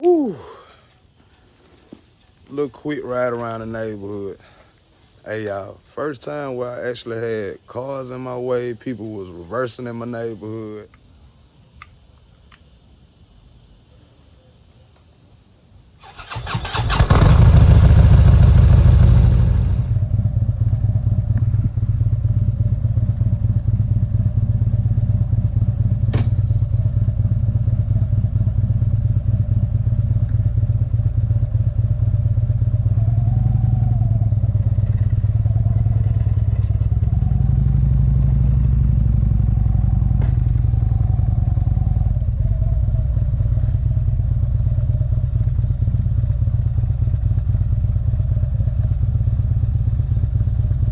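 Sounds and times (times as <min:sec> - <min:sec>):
sharp click: 0:11.8 - 0:12.8
motorcycle engine running: 0:16.1 - 0:50.9.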